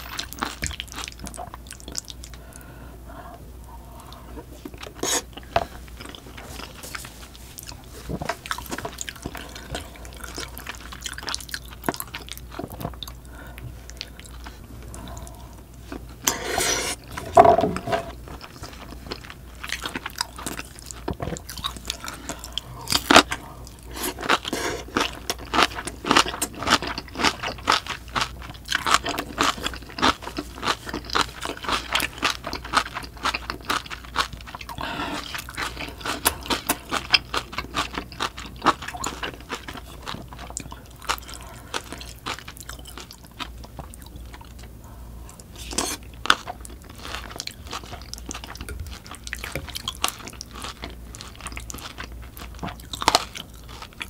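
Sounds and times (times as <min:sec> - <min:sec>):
chewing wet crunchy food: 0:00.0 - 0:02.7, 0:03.9 - 0:16.4, 0:17.0 - 0:54.0.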